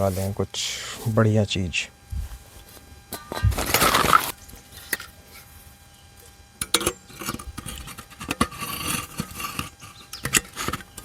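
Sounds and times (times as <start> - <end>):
camping gear rustling: 0.0 - 1.2, 2.0 - 5.8.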